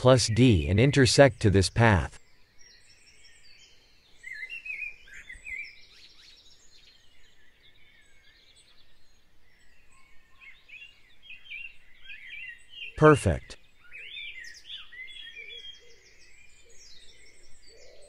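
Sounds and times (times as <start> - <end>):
faint birds chirping: 0.0 - 18.0.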